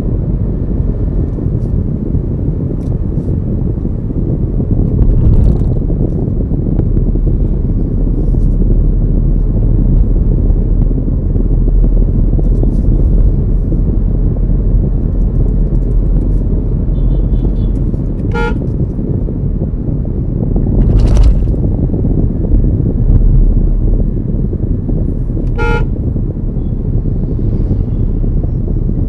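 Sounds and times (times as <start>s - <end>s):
car driving on road rumble: 0.0s - 29.0s
car horn toot: 16.9s - 18.7s, 25.5s - 26.0s.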